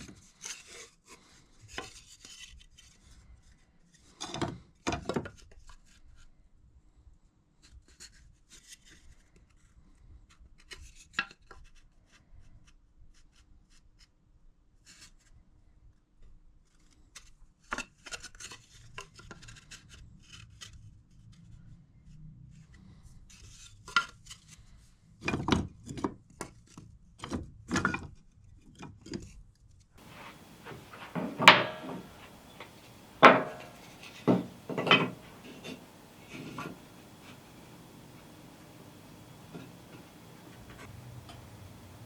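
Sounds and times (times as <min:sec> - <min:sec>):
ringing knocks: 0:30.0 - 0:42.0
tools clacking on workbench: 0:30.0 - 0:42.0.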